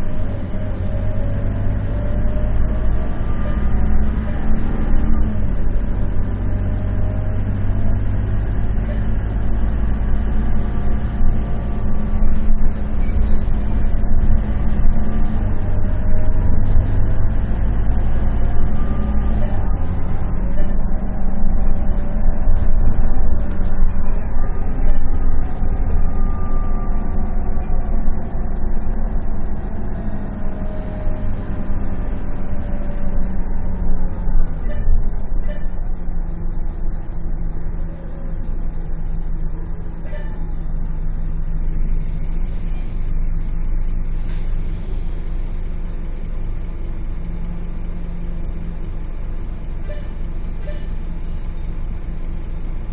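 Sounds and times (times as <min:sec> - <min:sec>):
bus diesel engine running: 0:00.0 - 0:52.9
road noise: 0:00.0 - 0:52.9.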